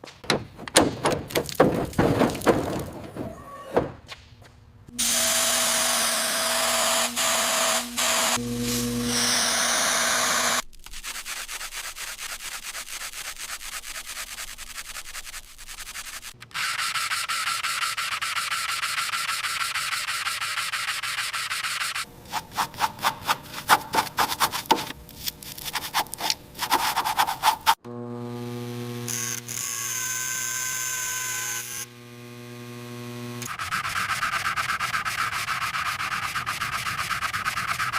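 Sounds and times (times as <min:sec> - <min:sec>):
abrasive sanding on a surface: 0:05.1 - 0:27.8, 0:33.5 - 0:37.9
quick scrubbing strokes: 0:22.3 - 0:27.8, 0:33.6 - 0:37.9.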